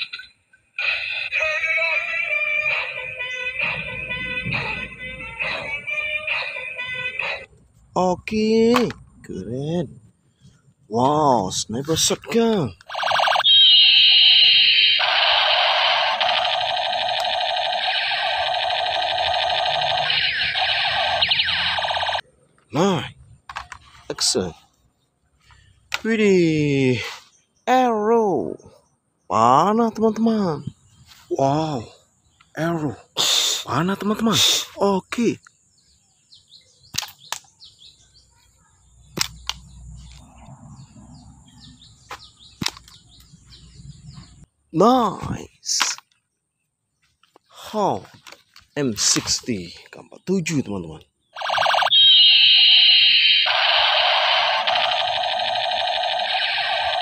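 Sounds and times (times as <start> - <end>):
birds chirping: 0.0 - 57.0
rapid electronic beeps and chirps: 12.9 - 22.2, 51.3 - 57.0
toy gun electronic whistling tone: 12.9 - 22.2, 51.4 - 57.0.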